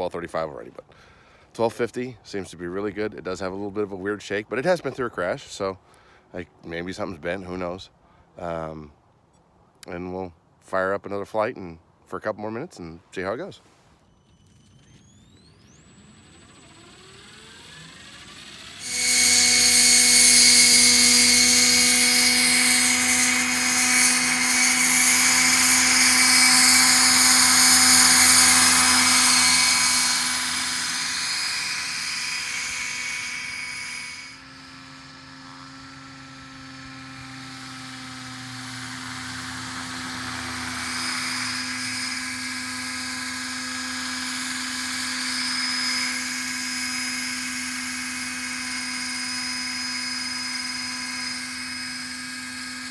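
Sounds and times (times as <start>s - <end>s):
rc helicopter motor whine: 14.0s - 52.9s.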